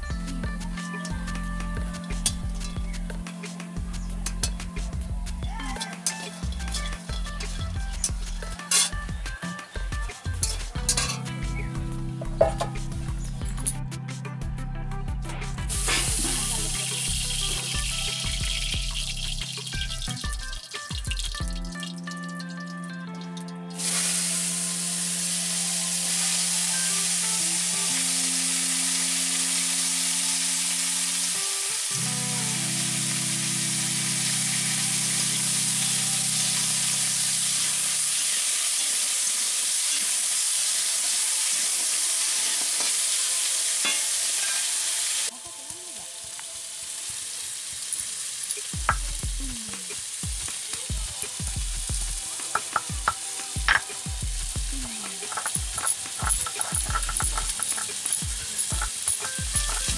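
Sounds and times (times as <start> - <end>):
vegetables sizzling in oil: 0.7 - 4.9, 5.6 - 11.3, 15.7 - 22.8, 23.8 - 59.9
knife chopping on stone: 52.6 - 53.9
metal ladle stirring in wok: 55.1 - 59.9.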